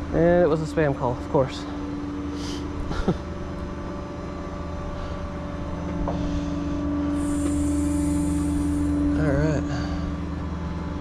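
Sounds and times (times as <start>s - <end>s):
truck engine droning: 2.1s - 11.0s
high hiss: 7.1s - 9.6s.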